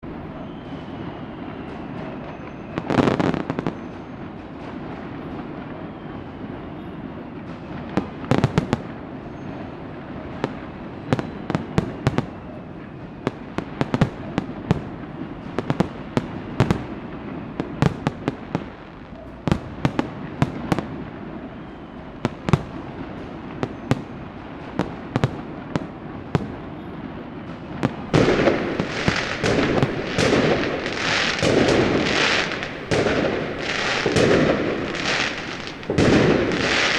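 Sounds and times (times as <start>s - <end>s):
loud fireworks bangs: 13.1s - 36.9s
fireworks cracking and popping: 27.8s - 36.9s.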